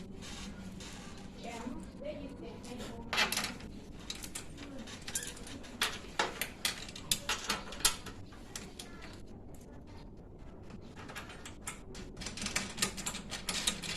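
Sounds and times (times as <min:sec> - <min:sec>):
clicks and knocks of tools: 0:03.1 - 0:08.9.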